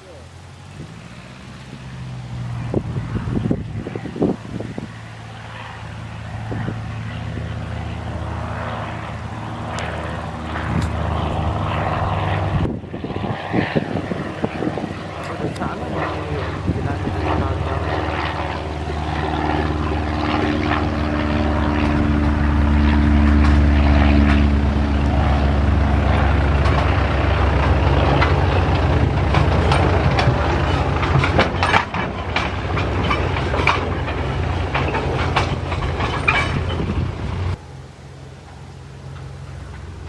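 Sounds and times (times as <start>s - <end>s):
aircraft piston engine and propeller: 0.0s - 40.0s
rushing noise: 0.0s - 40.0s.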